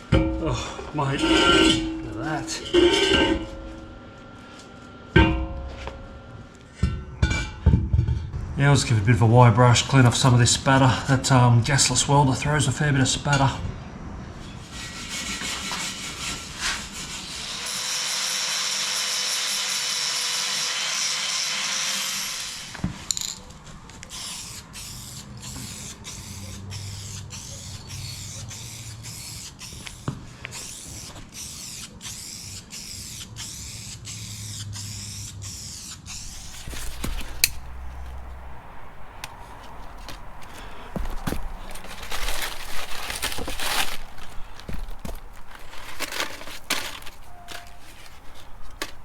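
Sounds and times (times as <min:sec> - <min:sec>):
wire brush scrubbing steel: 0:00.1 - 0:04.0, 0:14.5 - 0:22.8, 0:24.1 - 0:49.0.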